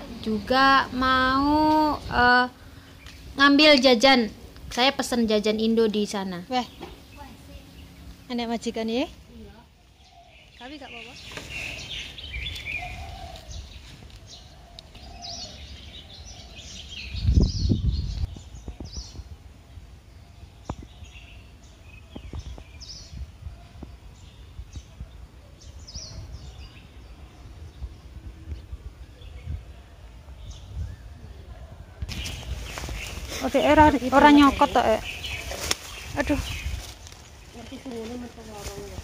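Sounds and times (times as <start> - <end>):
low outdoor rumble: 0.0 - 39.0
small birds chirping: 0.0 - 39.0
low rumble on microphone: 9.1 - 39.0.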